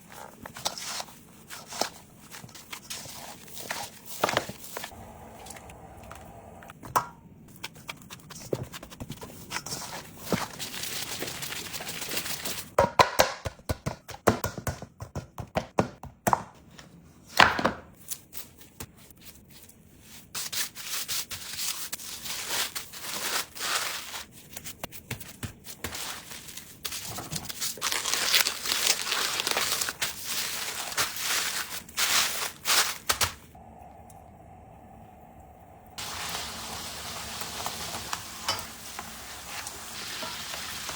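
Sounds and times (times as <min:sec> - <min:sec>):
packaging rustling and crinkling: 0:00.0 - 0:05.7, 0:09.7 - 0:12.8, 0:21.6 - 0:33.6.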